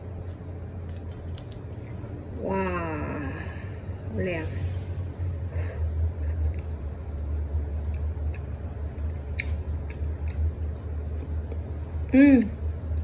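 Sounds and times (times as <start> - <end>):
low hum: 0.0 - 13.0
wet shell clicks and crackles: 0.8 - 2.0
person chewing peanut: 7.7 - 13.0.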